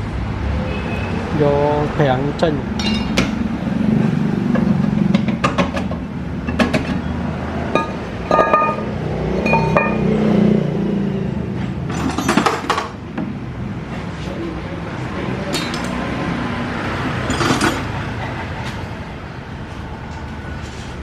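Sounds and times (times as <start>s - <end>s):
metal tools clinking: 2.8s - 3.3s, 7.7s - 10.2s, 15.5s - 16.0s.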